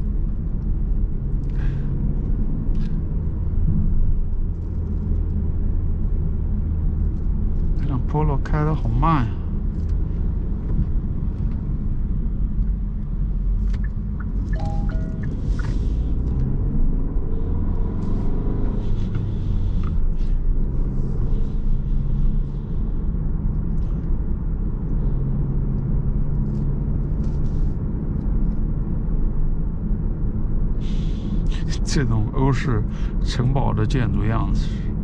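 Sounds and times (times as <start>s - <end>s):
car engine and tyre rumble: 0.0s - 35.0s
two-note tone: 14.6s - 15.6s.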